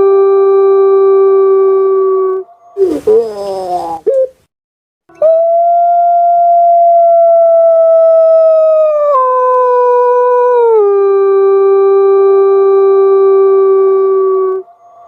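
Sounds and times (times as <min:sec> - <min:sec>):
dove long drawn-out call: 0:02.8 - 0:04.4.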